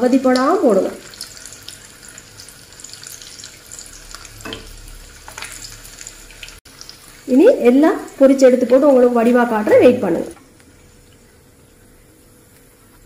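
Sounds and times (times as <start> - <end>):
food sizzling in oil: 0.0 - 12.8.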